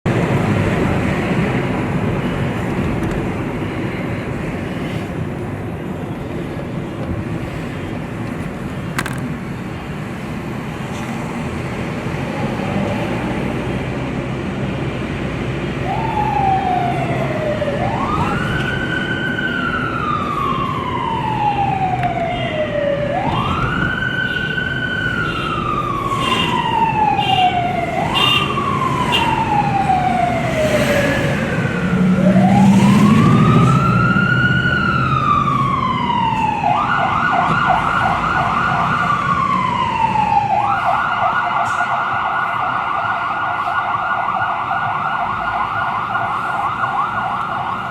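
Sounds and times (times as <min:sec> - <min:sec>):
fire engine siren wailing: 0:11.6 - 0:47.9.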